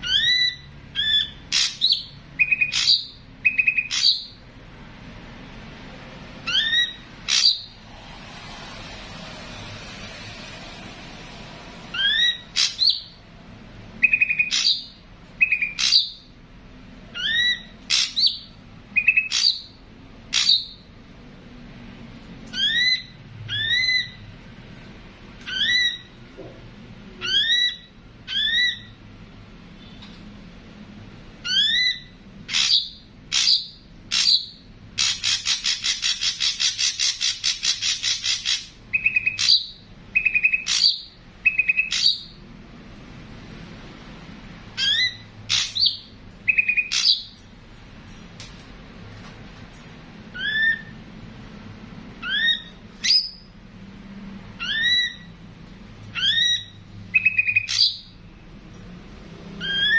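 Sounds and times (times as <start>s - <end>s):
bird whistled notes: 6.4s - 7.8s, 11.9s - 13.2s, 44.8s - 47.4s.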